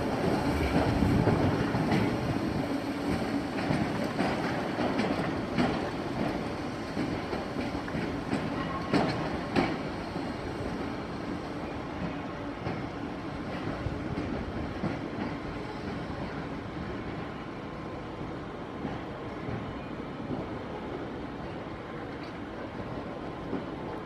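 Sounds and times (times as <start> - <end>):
train wheels clacking over joints: 0.1 - 11.0.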